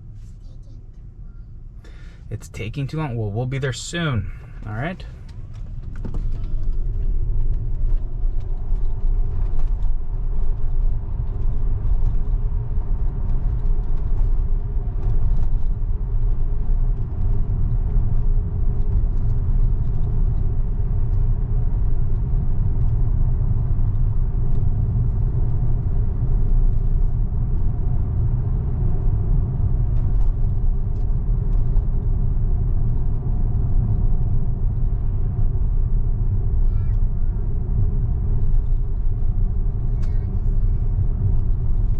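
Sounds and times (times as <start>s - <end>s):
road and tyre rumble in car: 0.0s - 41.9s.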